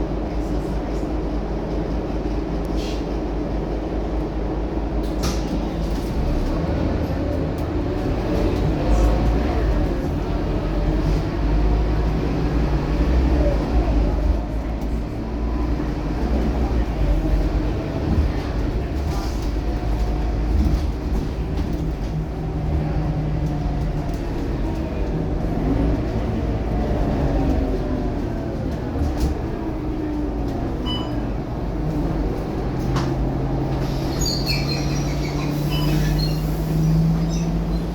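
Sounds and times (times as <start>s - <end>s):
bus diesel engine droning: 0.0s - 37.9s.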